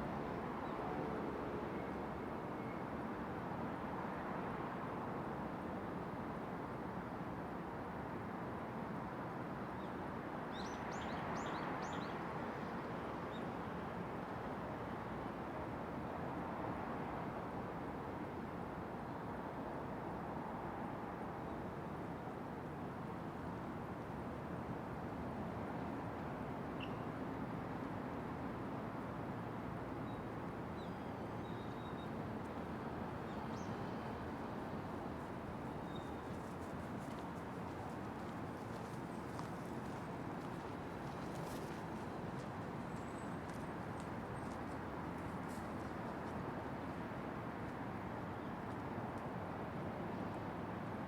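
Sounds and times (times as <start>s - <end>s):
distant city traffic hum: 0.0s - 6.9s, 22.9s - 51.0s.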